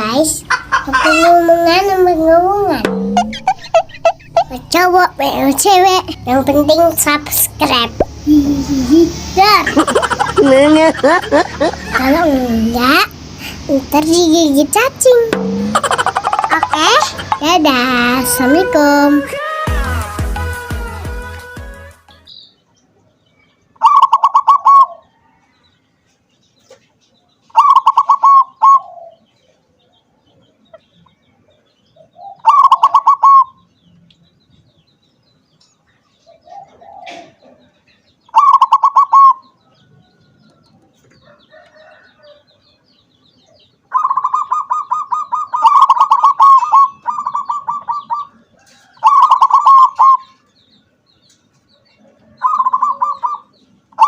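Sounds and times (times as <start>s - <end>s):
dove cooing: 27.6s - 29.2s, 36.4s - 37.7s, 43.9s - 48.4s, 49.0s - 50.3s, 52.2s - 53.4s.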